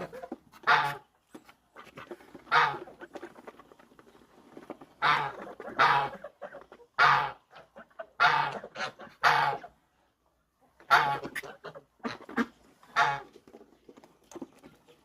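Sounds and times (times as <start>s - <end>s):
ducks quacking: 0.0s - 1.1s, 1.8s - 3.7s, 5.0s - 9.8s, 10.8s - 13.4s.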